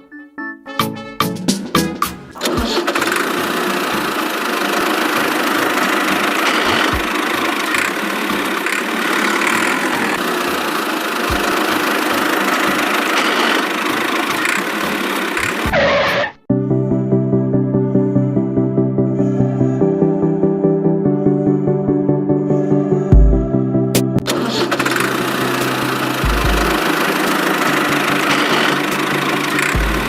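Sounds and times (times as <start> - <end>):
tractor motor running: 2.2 - 16.3, 24.2 - 30.0.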